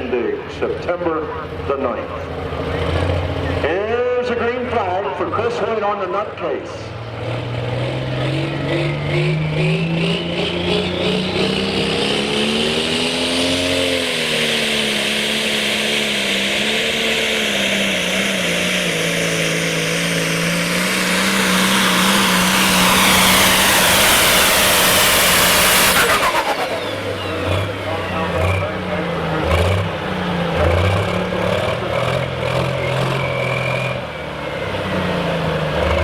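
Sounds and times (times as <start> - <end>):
tractor engine at full power: 0.0 - 36.0
high whine: 13.8 - 29.2.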